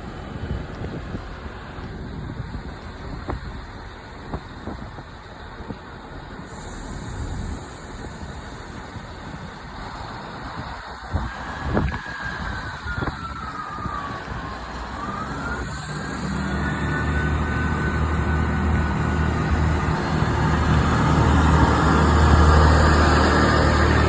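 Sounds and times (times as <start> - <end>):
diesel train engine pulling away: 0.0 - 24.0
whine changing pitch: 11.1 - 24.0.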